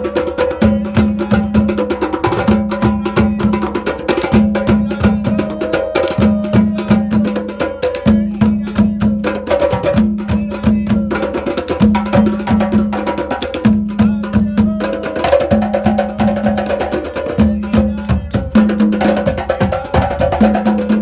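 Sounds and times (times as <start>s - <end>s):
hand drumming: 0.0s - 21.0s.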